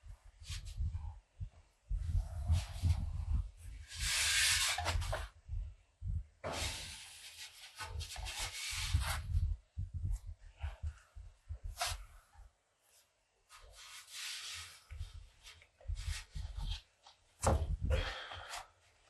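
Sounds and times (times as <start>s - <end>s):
dull low thuds: 17.4s - 17.9s.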